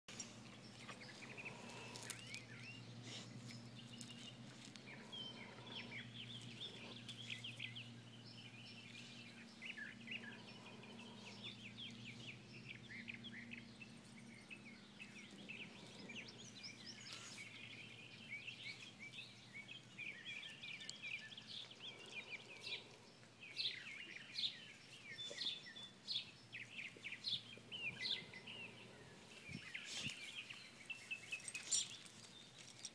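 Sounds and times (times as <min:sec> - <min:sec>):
birds chirping and twittering: 0:00.1 - 0:32.9
faint low hum: 0:00.1 - 0:32.9.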